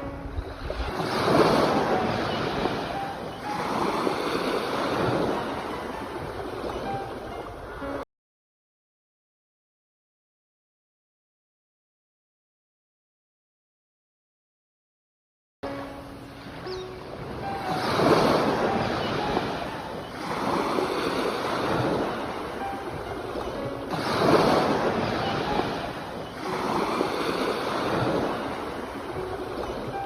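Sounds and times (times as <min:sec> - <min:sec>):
sea waves breaking on shore: 0:00.0 - 0:08.0, 0:15.7 - 0:30.0.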